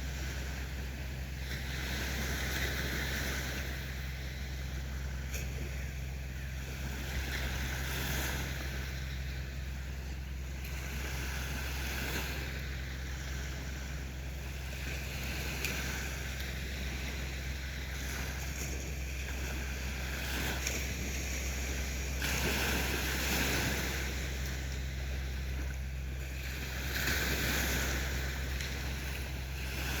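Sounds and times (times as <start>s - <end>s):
low rumble: 0.0s - 30.0s
sea waves washing onto beach: 0.0s - 30.0s.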